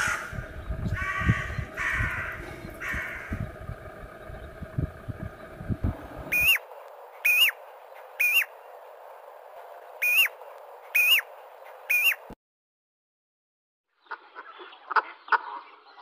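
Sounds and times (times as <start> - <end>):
bird whistling clear notes: 6.3 - 6.6, 7.2 - 7.6, 8.2 - 8.5, 10.0 - 10.3, 11.9 - 12.2.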